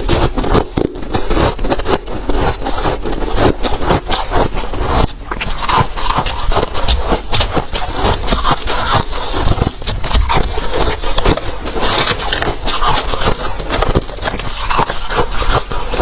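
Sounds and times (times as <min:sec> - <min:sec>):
ice crunched between teeth: 0:00.0 - 0:16.0.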